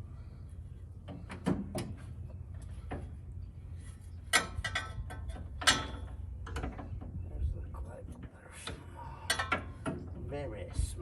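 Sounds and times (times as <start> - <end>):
steady low hum: 0.0 - 11.0
metal clank: 4.3 - 6.9.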